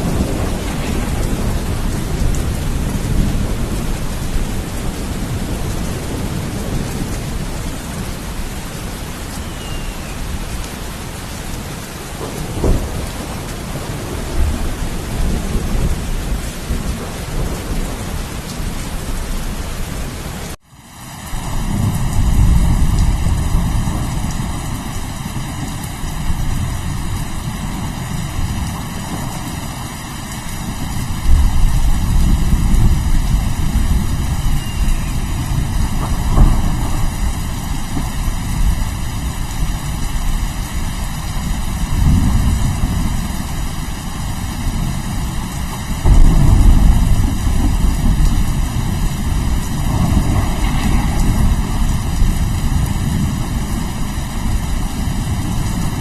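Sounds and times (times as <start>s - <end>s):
rolling thunder: 0.0s - 20.1s, 21.4s - 56.0s
heavy rain: 0.0s - 56.0s.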